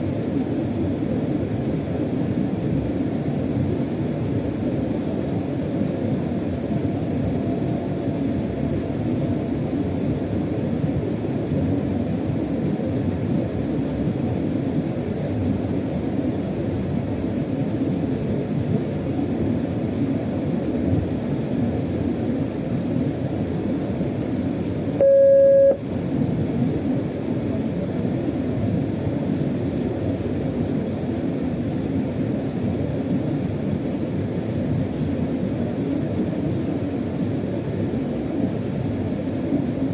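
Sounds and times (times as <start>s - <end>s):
freight train rumble: 0.0s - 39.9s
electronic beep: 25.0s - 25.8s.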